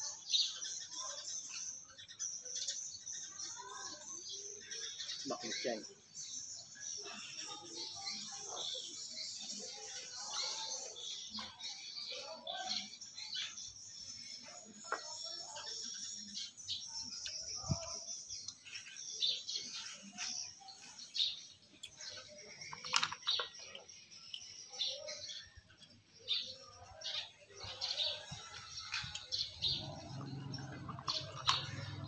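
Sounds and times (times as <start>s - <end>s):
small birds chirping: 0.0s - 32.0s
mussel shells clicking: 22.6s - 24.4s, 30.0s - 32.0s.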